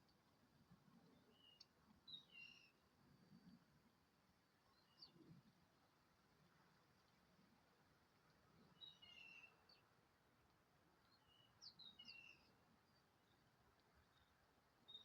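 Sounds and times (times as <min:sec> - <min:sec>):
quiet outdoor hiss: 0:00.0 - 0:15.0
small birds chirping: 0:01.1 - 0:02.8, 0:08.6 - 0:09.9, 0:11.0 - 0:15.0.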